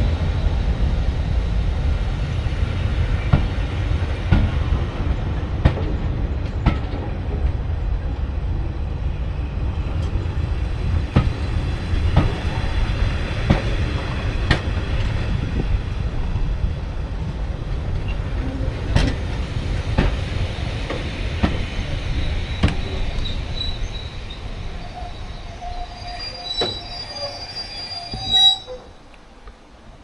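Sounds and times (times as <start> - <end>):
train rumble on rails: 0.0 - 30.0
wheels clicking over rail joints: 9.8 - 25.8
high wheel squeal: 22.1 - 29.0.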